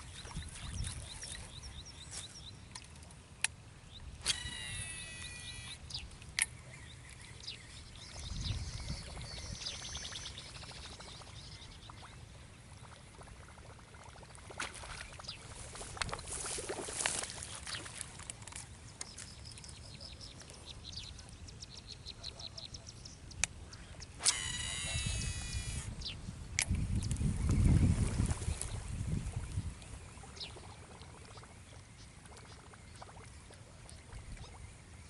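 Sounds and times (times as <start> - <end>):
birds chirping and calling: 4.2 - 12.0, 19.1 - 27.8.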